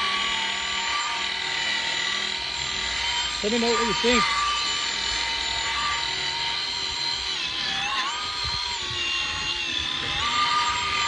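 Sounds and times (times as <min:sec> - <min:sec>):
electric buffer whining: 0:00.0 - 0:11.0.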